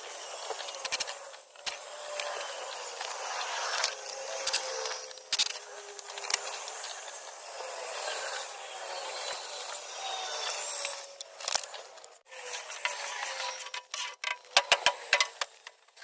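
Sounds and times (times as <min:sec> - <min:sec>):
metallic clicks of hand tools: 0:03.7 - 0:06.8.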